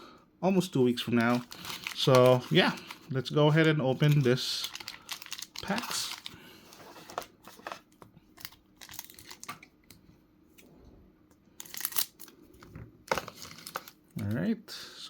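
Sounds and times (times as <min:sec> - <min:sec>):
wrapper tearing and crinkling: 0:01.1 - 0:06.4, 0:08.4 - 0:09.6, 0:11.6 - 0:12.3.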